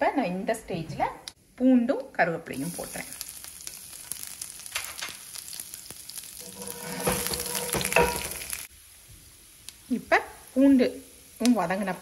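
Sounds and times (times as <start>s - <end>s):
food sizzling in hot oil: 2.4s - 12.0s
small pops in frying oil: 2.7s - 9.9s, 11.4s - 11.7s.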